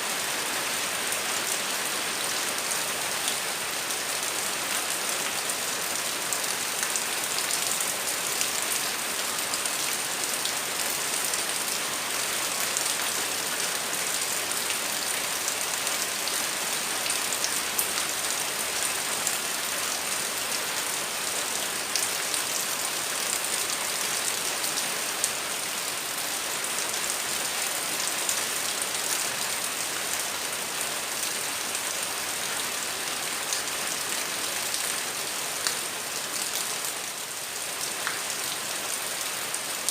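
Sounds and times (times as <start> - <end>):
heavy rain on hard surfaces: 0.0 - 39.9.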